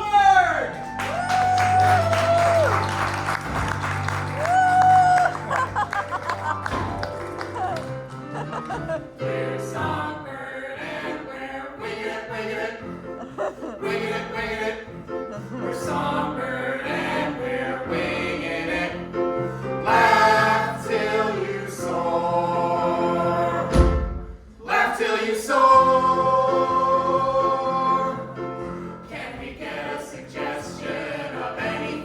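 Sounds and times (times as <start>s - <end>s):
musical accompaniment: 0.0s - 32.0s
low thump: 6.6s - 7.4s, 23.7s - 24.4s
voices singing in chorus: 9.0s - 23.9s, 24.6s - 32.0s.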